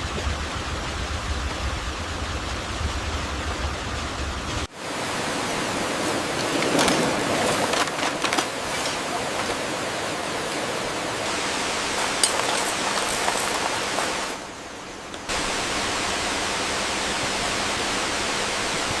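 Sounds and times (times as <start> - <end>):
waterfall rushing: 4.6 - 19.0.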